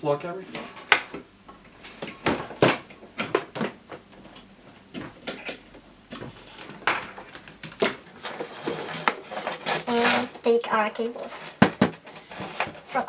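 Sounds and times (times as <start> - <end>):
cable plugs clicking and knocking: 0.5 - 10.5.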